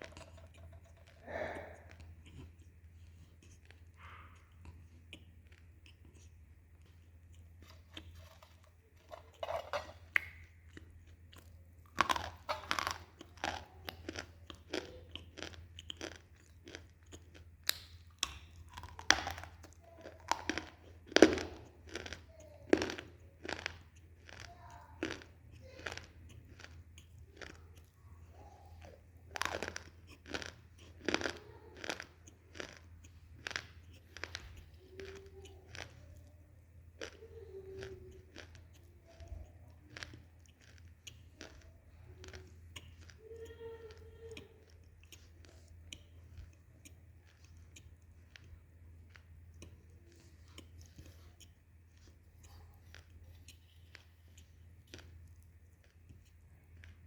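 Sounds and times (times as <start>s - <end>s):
crunching and chewing clay: 0.0s - 57.0s.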